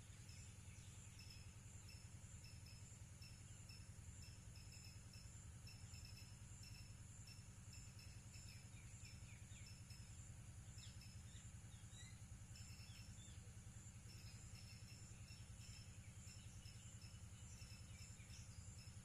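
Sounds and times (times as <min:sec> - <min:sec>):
low steady hum: 0:00.0 - 0:19.0
insects trilling in pulses: 0:01.1 - 0:19.0
bird chirps: 0:07.8 - 0:19.0.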